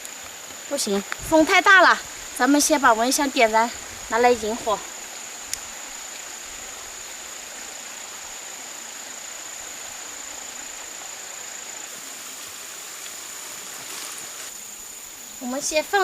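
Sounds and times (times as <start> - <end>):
wind buffeting microphone: 1.1 - 4.8.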